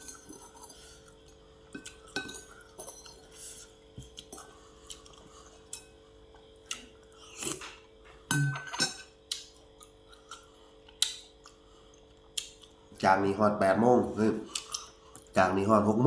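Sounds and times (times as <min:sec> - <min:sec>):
cutlery clinking on plates: 0:01.8 - 0:03.3, 0:07.5 - 0:09.1.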